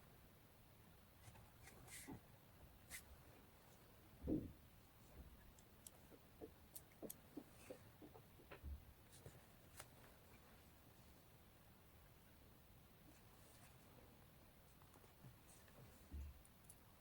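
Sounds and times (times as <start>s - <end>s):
light clicks and taps: 5.2s - 10.2s.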